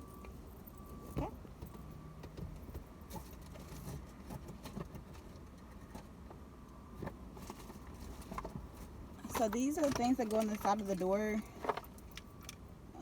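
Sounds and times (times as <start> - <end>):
low steady hum: 0.0 - 13.0
rustling of small accessories: 7.4 - 12.5.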